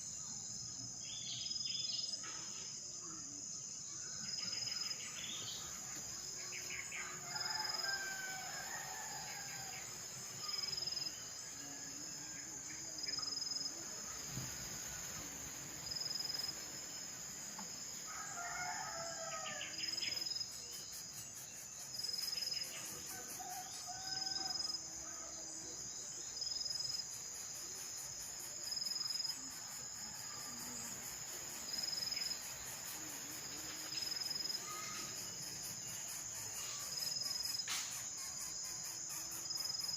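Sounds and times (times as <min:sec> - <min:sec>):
insects droning: 0:00.0 - 0:39.9
rooster crowing: 0:07.2 - 0:09.8, 0:18.1 - 0:19.8.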